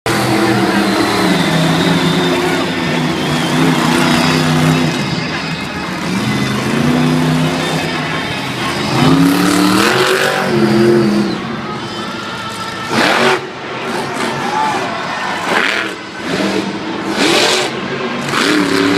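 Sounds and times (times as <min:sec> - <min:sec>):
truck engine revving hard: 0:00.1 - 0:12.0, 0:12.8 - 0:14.3, 0:15.4 - 0:18.9
loud rush of noise: 0:00.1 - 0:18.9.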